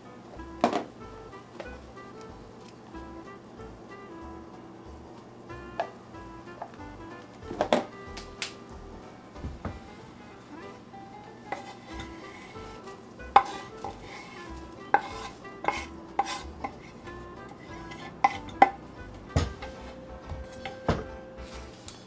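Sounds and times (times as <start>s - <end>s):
soft background music: 0.0s - 22.0s
food stirred in a pot: 11.3s - 18.9s
utensil clinking against metal: 13.4s - 22.0s.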